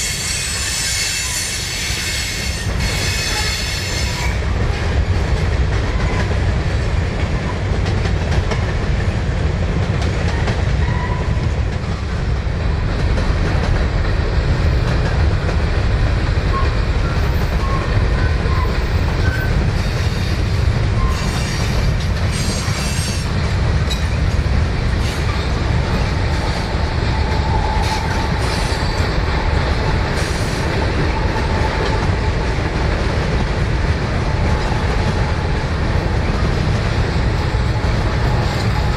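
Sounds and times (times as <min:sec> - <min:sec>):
high-pitched wheel squeals: 0:00.0 - 0:04.4
freight train rumbling on rails: 0:00.0 - 0:38.9.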